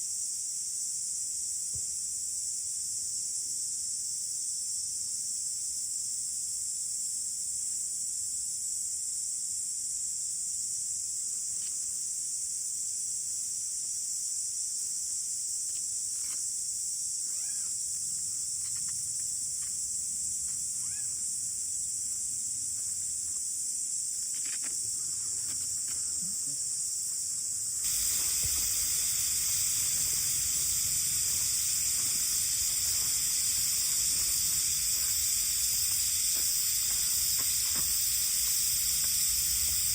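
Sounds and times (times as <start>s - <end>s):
high-pitched insect chorus: 0.0s - 39.9s
broad hiss: 23.1s - 39.9s.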